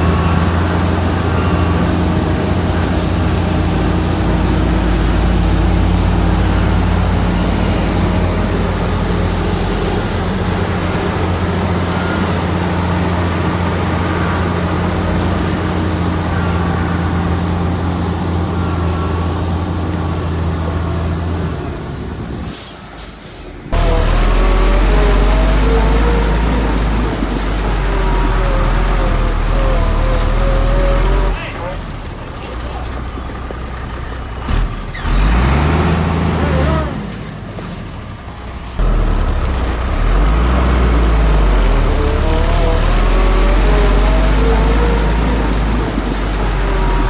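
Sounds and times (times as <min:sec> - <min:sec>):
heavy diesel machinery running: 0:00.0 - 0:47.0
loud engine starting: 0:00.0 - 0:47.0.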